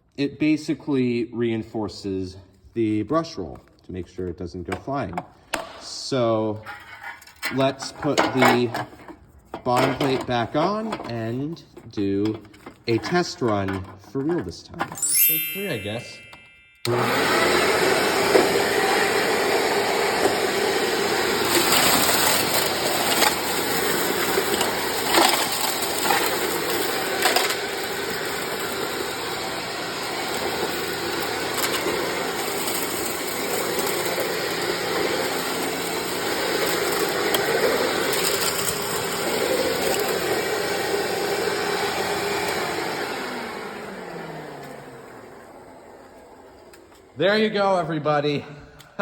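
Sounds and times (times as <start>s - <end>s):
vacuum cleaner running: 15.0s - 47.2s.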